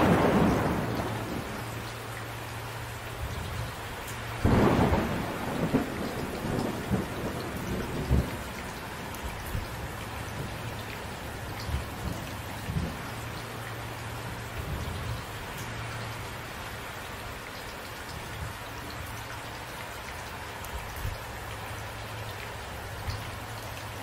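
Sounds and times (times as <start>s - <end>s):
thunderclap: 0.0s - 1.6s, 4.4s - 8.5s
thunder rumbling: 0.0s - 2.0s, 4.4s - 9.7s
steady rain: 0.0s - 24.0s.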